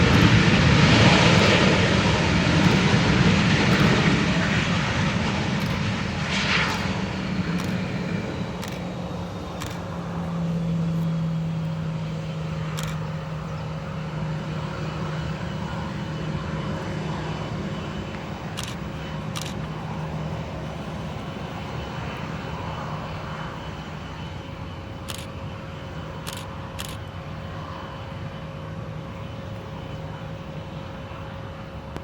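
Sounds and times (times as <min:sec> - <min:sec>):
jet engines rushing: 0:00.0 - 0:32.0
short clicks: 0:00.1 - 0:00.4, 0:02.6 - 0:02.9, 0:03.7 - 0:04.0, 0:05.6 - 0:05.9, 0:06.7 - 0:07.0, 0:07.6 - 0:07.8, 0:08.6 - 0:08.9, 0:09.6 - 0:09.9, 0:19.4 - 0:19.7.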